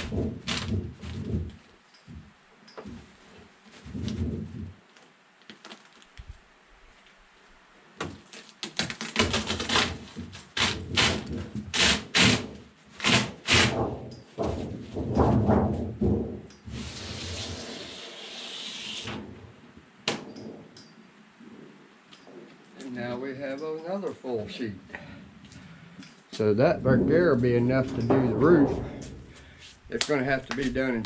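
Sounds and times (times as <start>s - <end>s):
sheet metal cracking and creaking: 13.0s - 18.0s, 26.4s - 31.0s
scraper scraping hiss: 16.7s - 19.2s.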